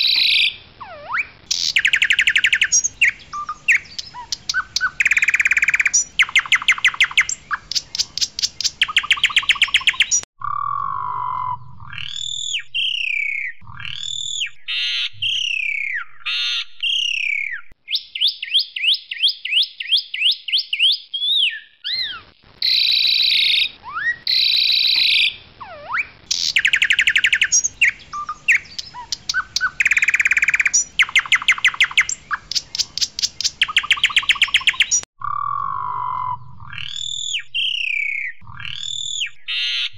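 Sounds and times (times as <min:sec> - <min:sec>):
starling singing varied song: 0:00.0 - 0:10.2, 0:22.8 - 0:35.1.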